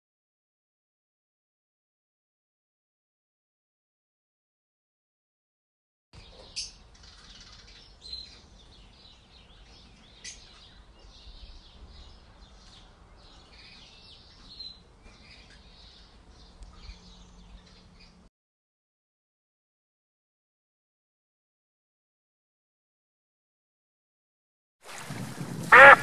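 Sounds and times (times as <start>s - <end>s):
birds chirping: 6.2s - 18.3s, 25.7s - 26.0s.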